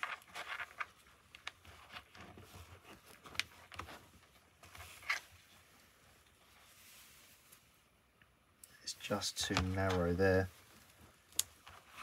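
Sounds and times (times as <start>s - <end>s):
plastic parts clicking and scraping: 0.0s - 5.4s.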